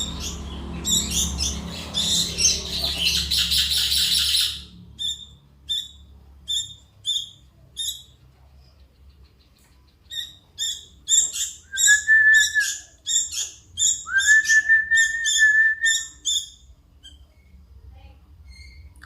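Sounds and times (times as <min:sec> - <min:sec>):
bird chick chirping: 0:00.0 - 0:17.5
whistled notes: 0:14.1 - 0:16.2.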